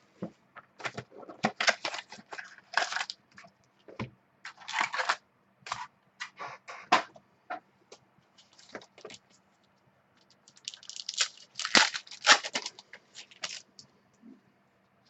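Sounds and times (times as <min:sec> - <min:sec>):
wrapper rustling: 0:01.5 - 0:03.2, 0:10.4 - 0:13.7
wrapper crackling tears: 0:10.5 - 0:13.7.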